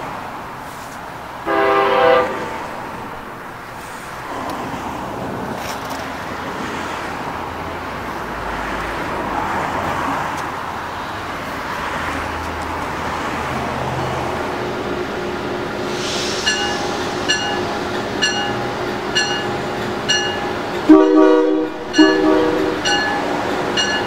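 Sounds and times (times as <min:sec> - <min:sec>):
train rumbling: 0:00.0 - 0:24.0
bell ringing: 0:16.3 - 0:21.2, 0:21.8 - 0:24.0.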